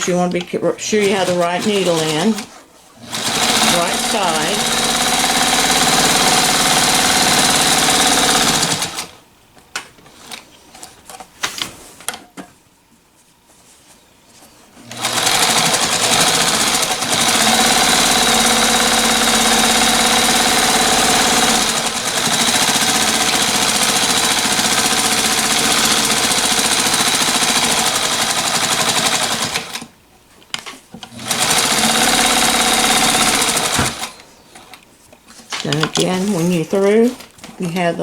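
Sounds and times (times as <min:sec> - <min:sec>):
sewing machine running: 0:00.8 - 0:09.2, 0:14.8 - 0:29.9, 0:31.1 - 0:34.7.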